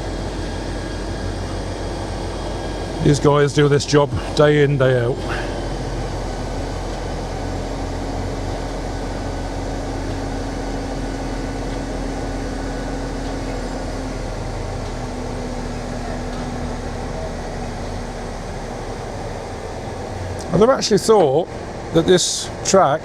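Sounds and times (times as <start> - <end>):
crane engine and hydraulics droning: 0.0 - 23.0
thin whine: 0.0 - 23.0.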